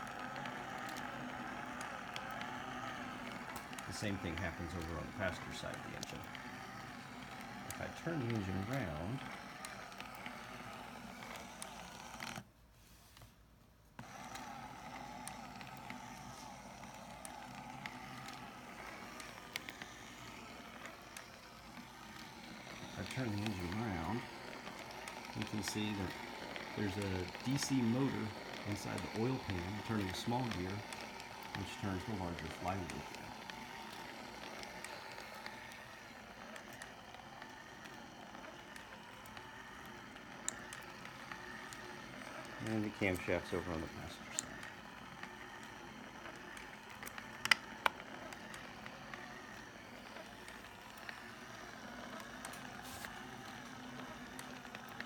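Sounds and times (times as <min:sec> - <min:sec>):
light ticks of plastic gears: 0:00.0 - 0:12.4, 0:14.0 - 0:55.0
small electric motor whirring: 0:00.0 - 0:12.5, 0:13.9 - 0:55.0
plastic parts clicking: 0:15.6 - 0:55.0.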